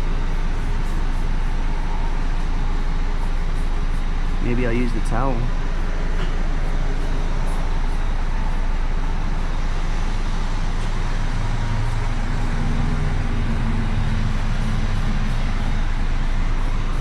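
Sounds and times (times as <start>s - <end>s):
steady rushing noise: 0.0s - 17.0s
vehicle engine hum: 0.0s - 17.0s.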